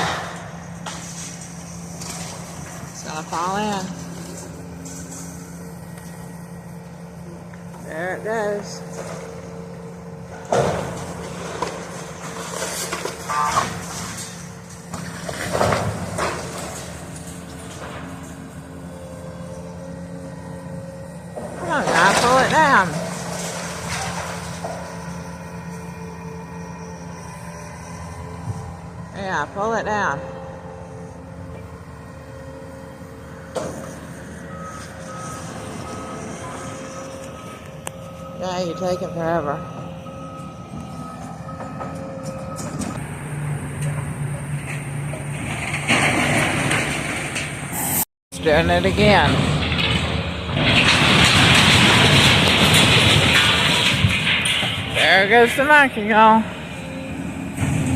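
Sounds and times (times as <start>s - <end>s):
diesel engine running: 0.0s - 57.9s
building structure crashing: 10.5s - 18.1s, 21.4s - 24.9s, 44.5s - 47.8s, 48.5s - 56.4s
reversing alarm beeps: 24.7s - 43.3s.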